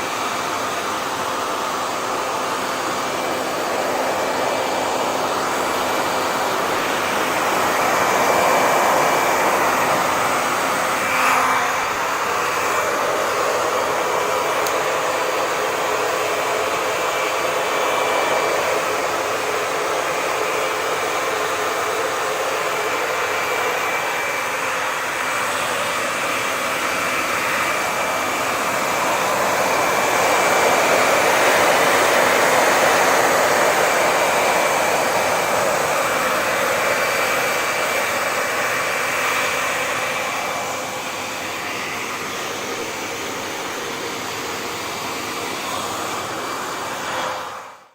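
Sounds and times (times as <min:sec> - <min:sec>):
hair dryer running: 0:00.0 - 0:47.9
click: 0:14.6 - 0:14.8.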